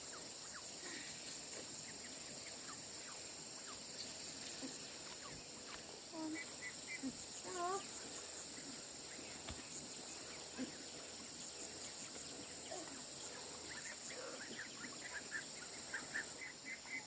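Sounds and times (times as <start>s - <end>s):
faint birds chirping: 0.0s - 17.0s
steady high hiss: 0.0s - 17.0s.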